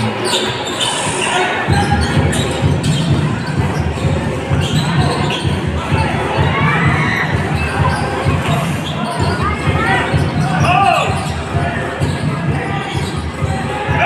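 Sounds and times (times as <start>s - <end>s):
crowd noise: 0.0s - 14.0s
basketball bouncing on court: 1.7s - 14.0s
people shouting: 4.7s - 14.0s.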